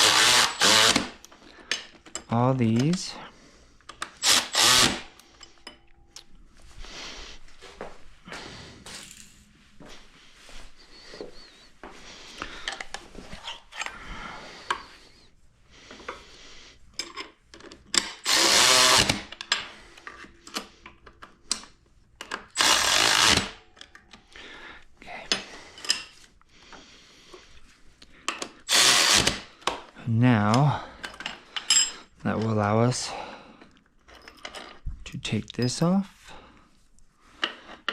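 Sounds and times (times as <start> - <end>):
power drill driving bolts: 0.0 - 1.2, 4.0 - 5.2, 18.0 - 19.5, 22.4 - 23.6, 28.7 - 29.5
tools and parts clicking: 0.0 - 3.1, 3.8 - 6.3, 16.9 - 24.2, 28.2 - 29.9, 30.5 - 32.6, 33.6 - 34.8.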